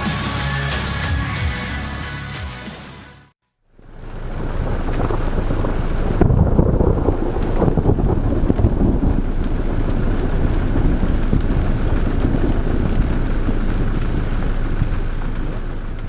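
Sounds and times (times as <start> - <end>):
wind: 3.6 - 16.0
rain: 3.7 - 16.0
low rumble of thunder: 3.9 - 16.0.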